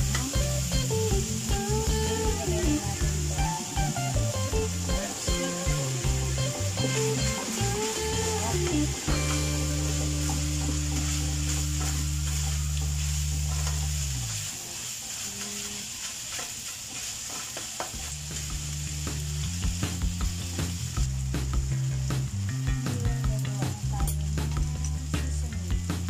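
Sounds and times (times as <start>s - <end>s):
meat sizzling in a frying pan: 0.0s - 26.0s
spatula scraping a pan: 10.0s - 18.1s.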